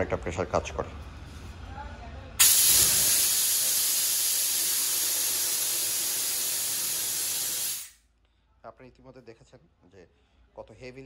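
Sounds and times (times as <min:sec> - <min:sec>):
compressed air hissing: 0:02.4 - 0:08.0.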